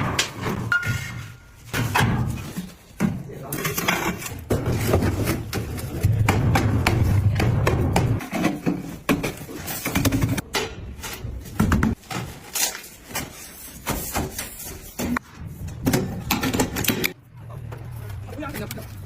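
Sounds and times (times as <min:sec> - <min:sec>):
building work knocks and thuds: 0:00.0 - 0:12.5.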